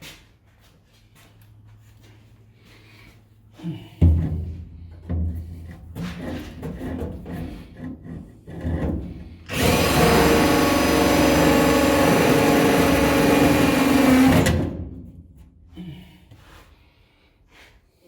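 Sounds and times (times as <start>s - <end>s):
power drill whining: 9.5s - 14.7s.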